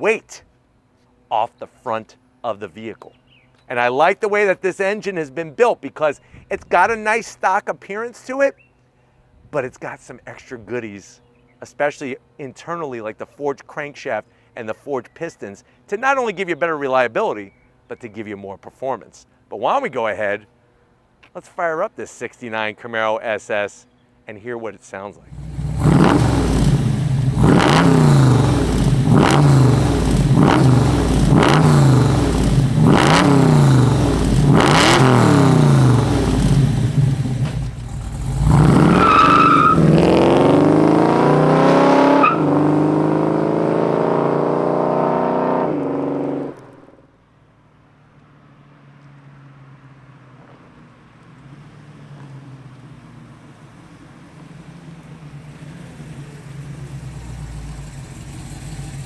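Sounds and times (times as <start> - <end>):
distant engine rumble: 25.1 - 41.2, 49.0 - 59.0
engine revving: 25.3 - 47.0
tires squealing: 37.9 - 44.4.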